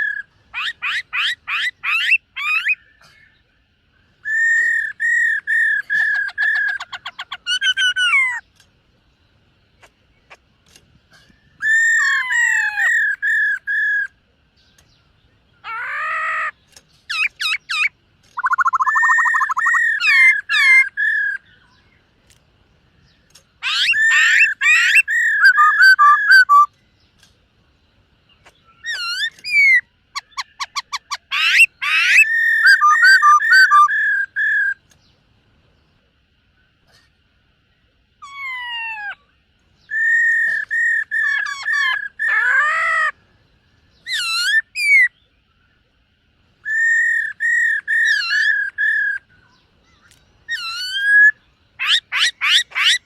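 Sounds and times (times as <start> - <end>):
bird whistling and trilling: 0.0 - 3.3, 4.2 - 8.4, 11.4 - 14.8, 15.6 - 21.8, 23.6 - 26.7, 28.4 - 34.9, 39.8 - 43.1, 43.9 - 45.2, 46.6 - 53.0.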